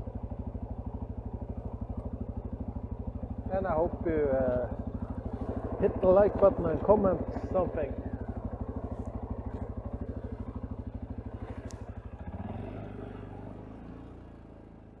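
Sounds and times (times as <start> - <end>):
atv engine idling: 0.0 - 15.0.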